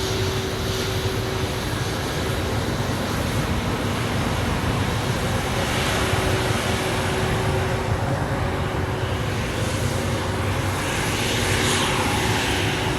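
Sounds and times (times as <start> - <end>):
jet engines rumbling: 0.0 - 12.9.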